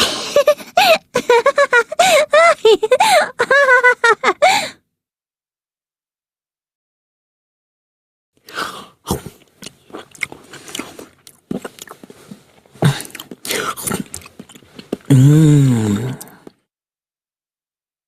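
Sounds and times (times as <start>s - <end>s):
person chewing crunchy food: 8.4s - 16.6s
person humming: 15.1s - 16.4s.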